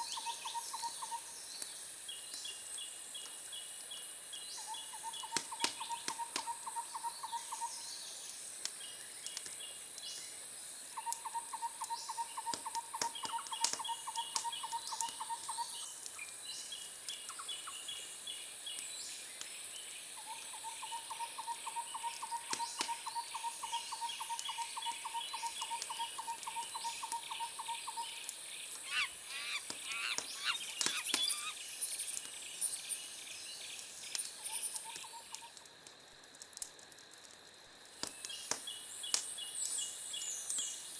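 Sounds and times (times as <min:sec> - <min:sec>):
wood fire crackling and popping: 0:05.0 - 0:06.8, 0:08.2 - 0:17.6, 0:22.1 - 0:27.4, 0:29.6 - 0:40.9.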